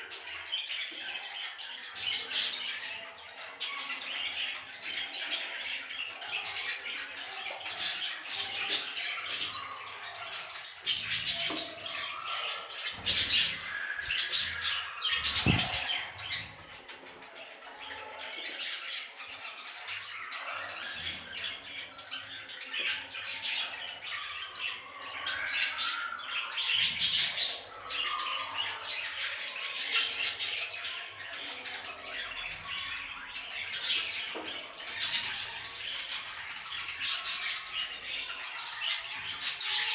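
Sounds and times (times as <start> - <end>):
budgerigars chattering: 0.0 - 39.9
low thumps: 15.2 - 16.0.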